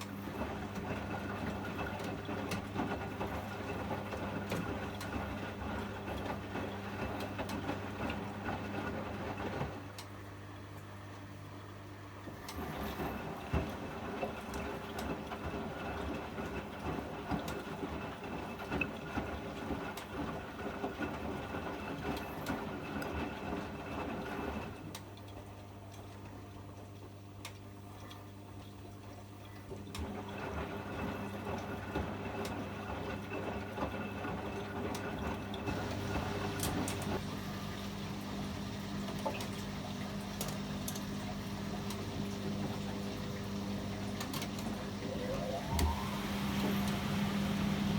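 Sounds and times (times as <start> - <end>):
washing machine motor hum: 0.0 - 47.9
water sloshing in drum: 35.4 - 47.9.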